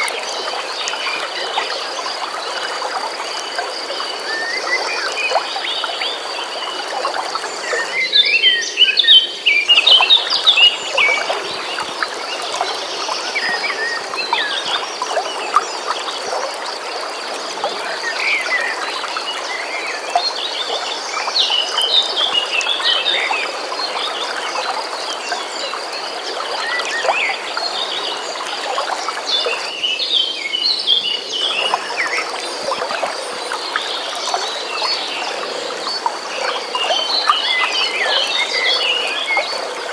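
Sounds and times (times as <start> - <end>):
songbirds chirping: 0.0 - 39.9
stream water flowing: 0.0 - 39.9.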